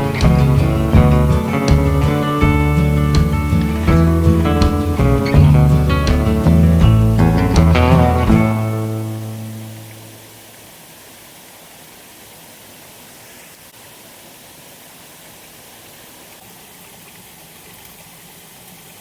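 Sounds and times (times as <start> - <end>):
strummed guitar chord: 0.0 - 10.2
waterfall rushing: 0.0 - 17.4.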